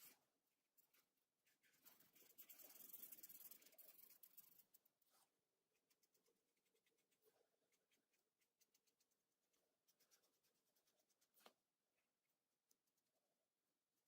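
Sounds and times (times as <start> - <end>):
crayon scratching on paper: 1.4 - 11.6.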